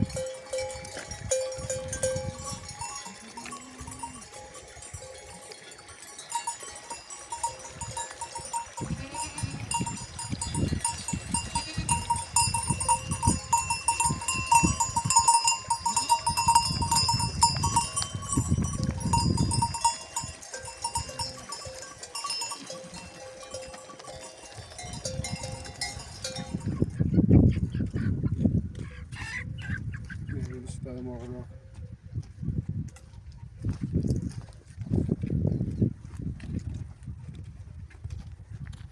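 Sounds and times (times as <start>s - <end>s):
animal bells jingling: 0.0s - 27.2s.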